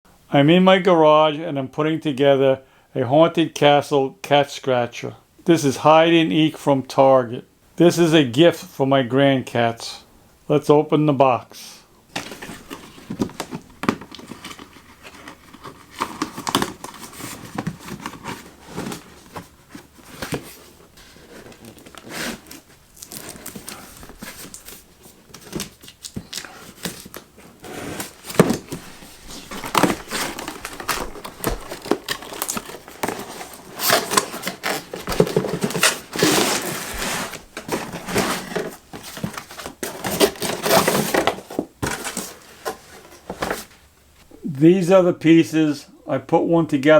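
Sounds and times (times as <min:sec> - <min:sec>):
cardboard pieces rustling and knocking: 0:12.1 - 0:43.8
cardboard tearing: 0:12.1 - 0:43.8
packaging crinkling: 0:12.1 - 0:43.8.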